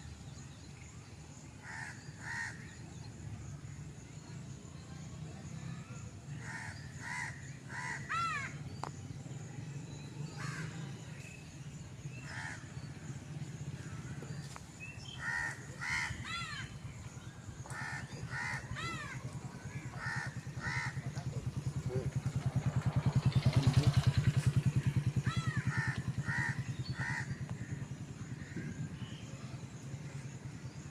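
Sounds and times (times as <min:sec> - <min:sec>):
crows cawing: 0:01.6 - 0:02.6, 0:06.4 - 0:08.5, 0:10.4 - 0:10.7, 0:12.2 - 0:12.7, 0:15.1 - 0:16.7, 0:17.7 - 0:21.2, 0:25.2 - 0:27.8
vehicle engine humming: 0:16.7 - 0:30.9.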